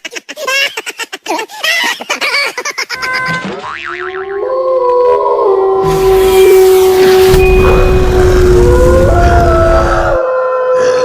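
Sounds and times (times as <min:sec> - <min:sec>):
cartoon boing: 0:03.0 - 0:04.5.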